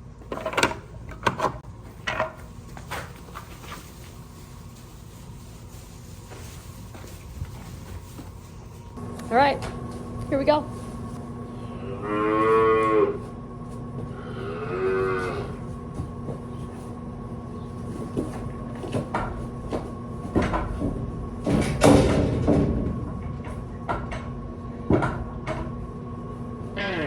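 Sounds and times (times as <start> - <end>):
scuffling: 1.8 - 11.2
calf bawling: 14.1 - 15.6, 26.7 - 27.0
knocks and clatter: 18.0 - 24.3.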